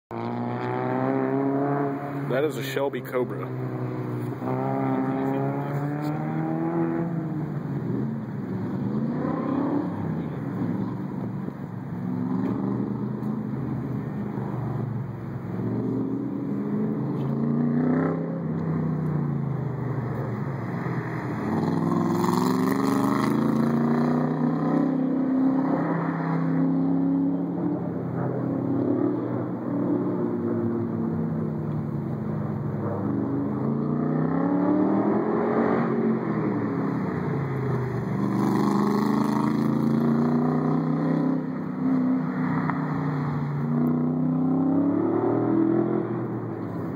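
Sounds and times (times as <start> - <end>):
engine accelerating and easing off: 0.2 - 46.5.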